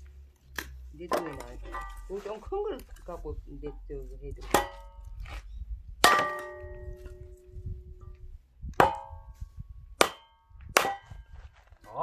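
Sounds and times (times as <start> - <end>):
axe strikes with metallic clang: 6.0 - 6.9, 10.0 - 11.2.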